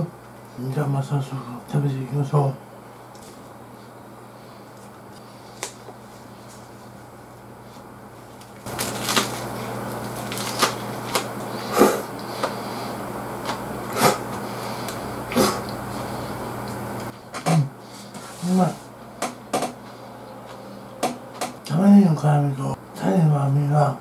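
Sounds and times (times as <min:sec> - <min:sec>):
man chewing crunchy food: 0:08.6 - 0:12.7.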